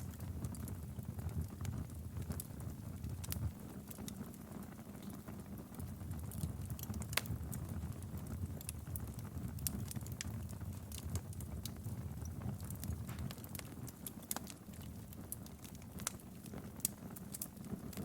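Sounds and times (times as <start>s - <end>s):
wood fire crackling: 0.0s - 18.0s
sharp pops of burning wood: 6.2s - 18.0s.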